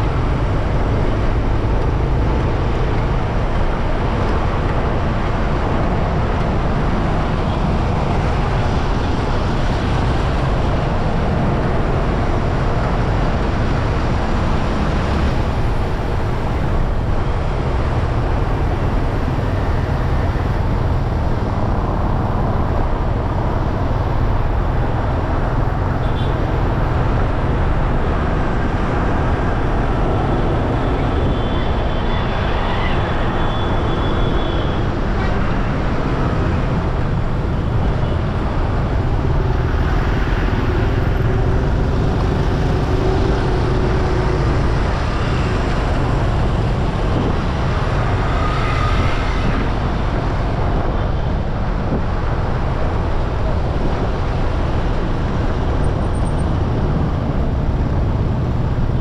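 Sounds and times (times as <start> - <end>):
road and wind noise: 0.0 - 59.0
vehicles passing: 0.0 - 59.0.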